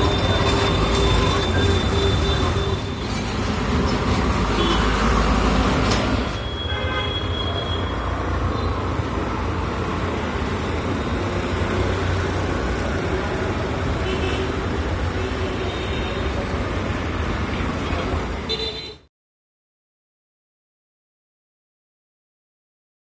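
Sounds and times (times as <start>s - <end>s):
road traffic: 0.0s - 19.1s.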